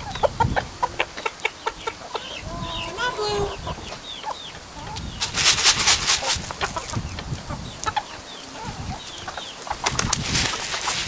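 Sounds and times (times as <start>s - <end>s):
chickens clucking: 0.0s - 11.0s
rustling: 5.0s - 7.1s, 8.5s - 11.0s.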